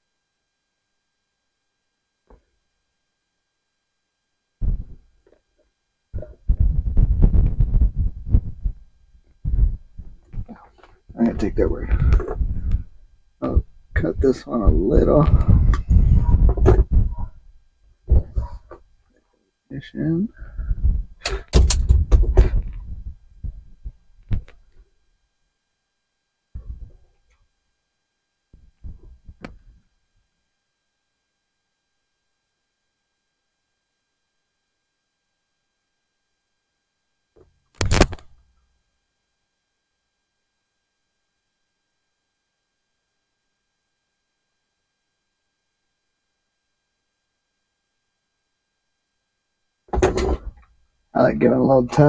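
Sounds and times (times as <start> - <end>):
muffled low thumps and rumbling: 4.6 - 5.1, 6.2 - 18.8, 20.4 - 24.6, 26.6 - 27.0.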